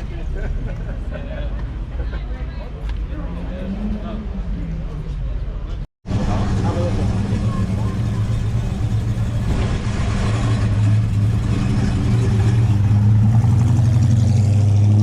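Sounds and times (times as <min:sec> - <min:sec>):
car engine running at low revs: 0:06.1 - 0:15.0.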